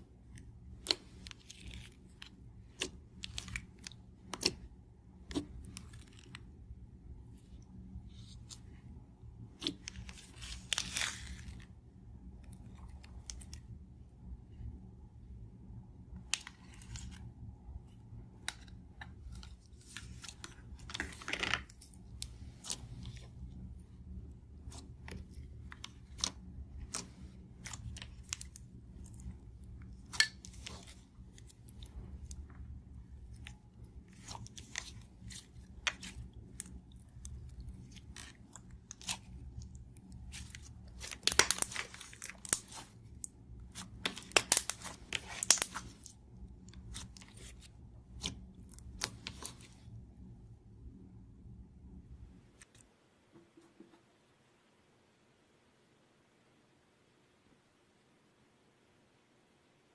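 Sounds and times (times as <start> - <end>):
low hum: 0.0 - 54.1
small clicks and crackles: 24.2 - 49.9.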